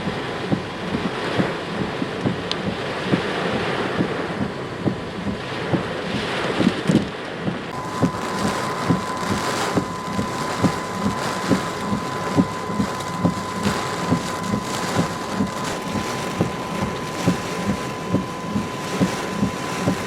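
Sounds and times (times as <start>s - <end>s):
heavy rain: 5.4s - 20.0s
steady high-pitched tone: 7.7s - 20.0s
wind noise: 7.7s - 20.0s.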